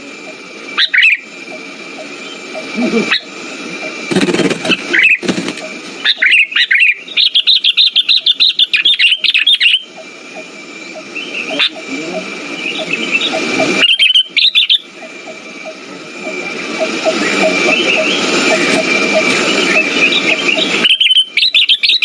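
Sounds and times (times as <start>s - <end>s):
bird chirping: 0.2s - 22.0s.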